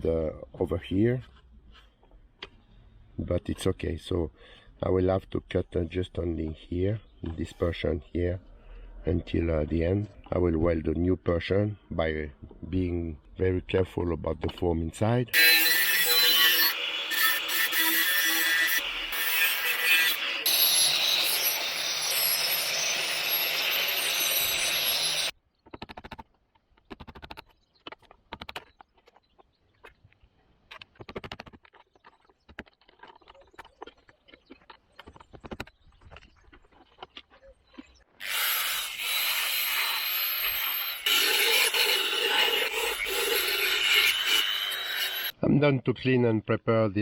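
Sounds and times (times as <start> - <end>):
power tool on metal: 15.4 - 25.3, 38.2 - 45.4.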